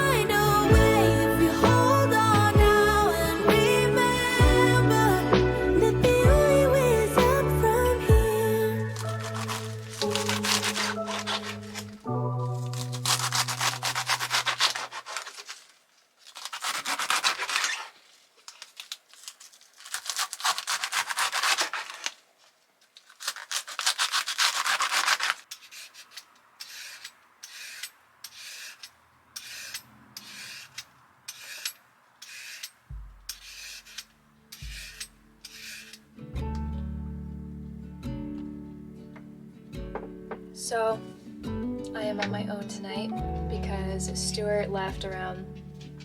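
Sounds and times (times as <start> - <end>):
hand tool rubbing a surface: 13.0 - 15.6, 23.8 - 36.0.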